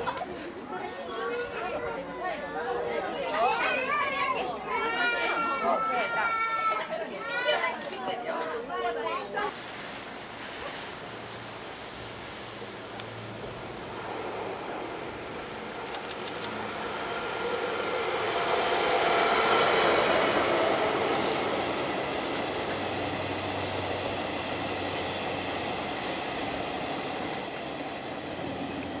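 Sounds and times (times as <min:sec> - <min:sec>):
diesel locomotive engine: 0:09.5 - 0:29.0
train wheels rolling: 0:11.2 - 0:29.0
high-pitched whine: 0:13.6 - 0:29.0.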